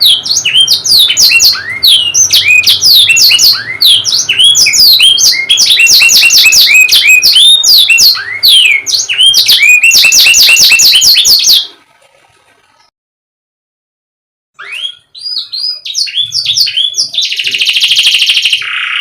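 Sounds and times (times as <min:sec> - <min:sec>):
canary singing: 0:00.0 - 0:11.8, 0:14.6 - 0:19.0.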